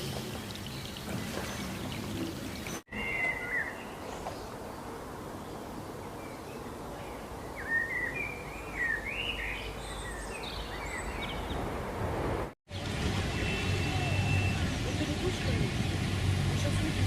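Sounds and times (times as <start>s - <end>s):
bird chirping: 0.6s - 11.7s
outdoor background hiss: 1.9s - 14.1s.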